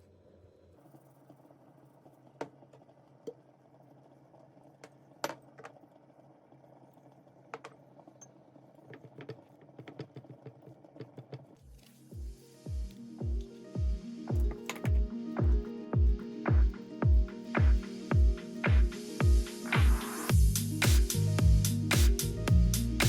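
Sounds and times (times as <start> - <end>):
utensils clicking and tapping: 7.6 - 12.0, 14.3 - 15.0.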